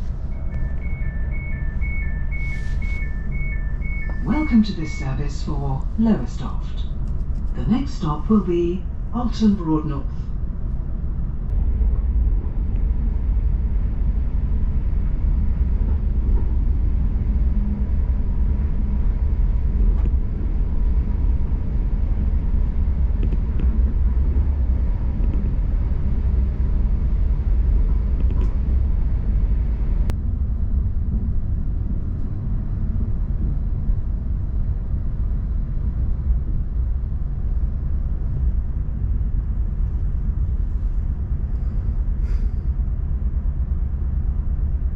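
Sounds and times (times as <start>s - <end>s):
thin steady whine: 0.0s - 7.0s
train rumble inside carriage: 0.0s - 44.9s.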